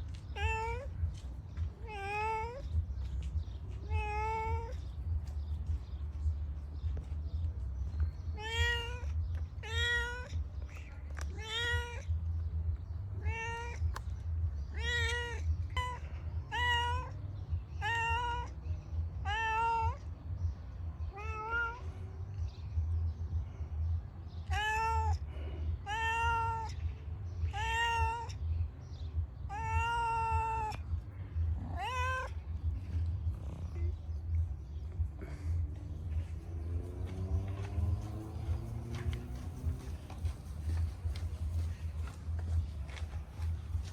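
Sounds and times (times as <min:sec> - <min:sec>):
cat meowing: 0:00.3 - 0:01.0, 0:01.8 - 0:02.8, 0:03.8 - 0:04.8, 0:08.3 - 0:12.2, 0:13.2 - 0:14.0, 0:14.7 - 0:17.2, 0:17.8 - 0:18.6, 0:19.2 - 0:20.0, 0:21.0 - 0:22.0, 0:24.4 - 0:25.2, 0:25.8 - 0:26.8, 0:27.4 - 0:28.5, 0:29.5 - 0:34.0
low rumble: 0:30.4 - 0:43.9.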